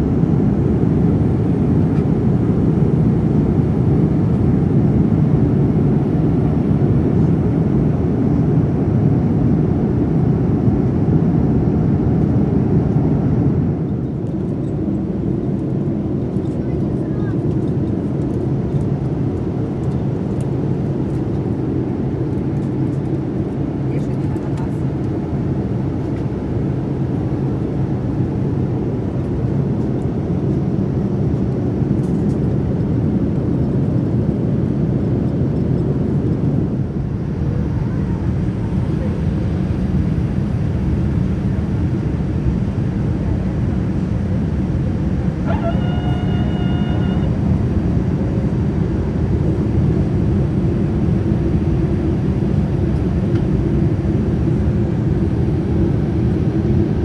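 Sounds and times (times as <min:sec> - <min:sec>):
jet cabin engine rumble: 0:00.0 - 0:57.0.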